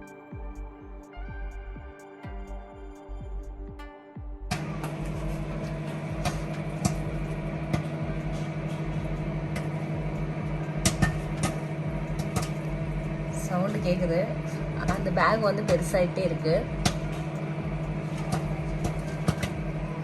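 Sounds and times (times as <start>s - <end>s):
microwave oven humming: 4.5s - 20.0s
popcorn kernels popping: 4.5s - 20.0s.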